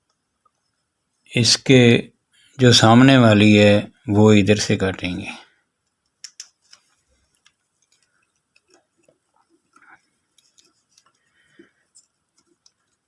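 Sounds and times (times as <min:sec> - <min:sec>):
faint clicks and scrapes: 0:00.0 - 0:01.2, 0:05.8 - 0:13.0.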